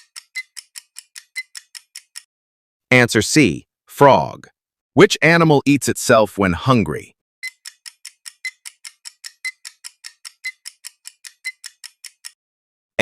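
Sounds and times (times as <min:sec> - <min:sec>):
rapid clock ticking: 0:00.0 - 0:02.3, 0:07.4 - 0:12.4.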